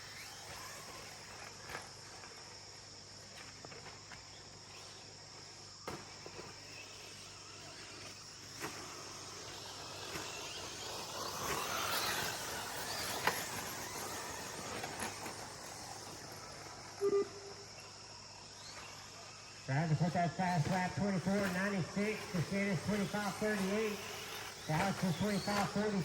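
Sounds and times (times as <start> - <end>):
crickets and insects chirring: 0.0 - 26.0
rc trucks running on dirt: 0.0 - 26.0
short beeps: 17.0 - 17.5.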